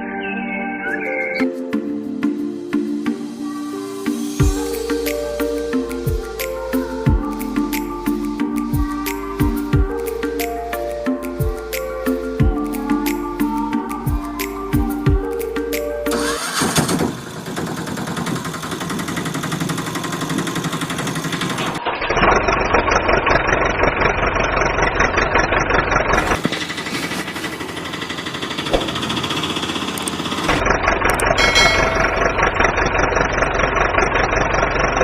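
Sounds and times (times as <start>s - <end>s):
engine running with pulsing beat: 4.4s - 10.5s, 16.2s - 35.0s.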